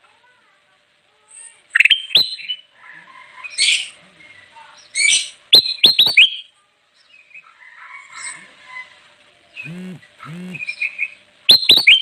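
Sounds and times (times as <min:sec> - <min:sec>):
softer bird chatter: 0:01.1 - 0:12.0
bulbul singing: 0:04.8 - 0:06.5, 0:09.6 - 0:12.0
harsh chirps: 0:09.6 - 0:12.0.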